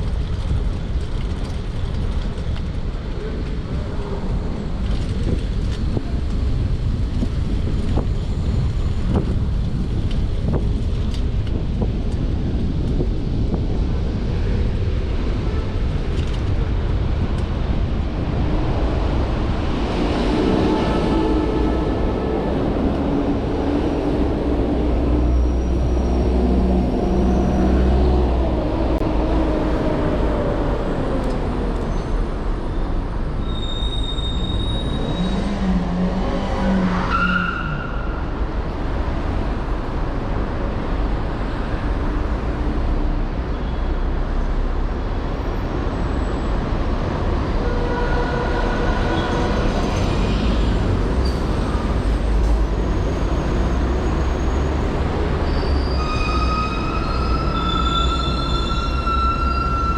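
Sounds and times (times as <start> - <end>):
wind rumble on microphone: 0.0 - 33.5
city street traffic: 0.0 - 59.9.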